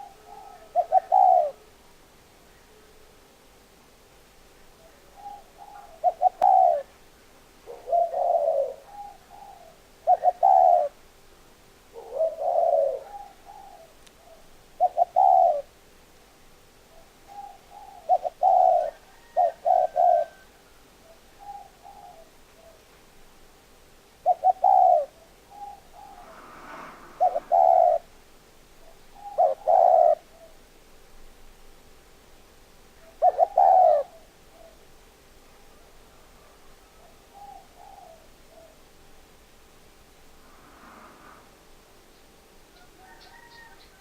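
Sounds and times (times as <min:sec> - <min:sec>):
dove cooing: 0:00.0 - 0:01.8, 0:04.8 - 0:07.0, 0:07.6 - 0:11.0, 0:11.9 - 0:15.8, 0:16.9 - 0:22.8, 0:24.2 - 0:28.2, 0:28.8 - 0:30.6, 0:32.9 - 0:34.9, 0:35.7 - 0:39.0, 0:42.7 - 0:44.0.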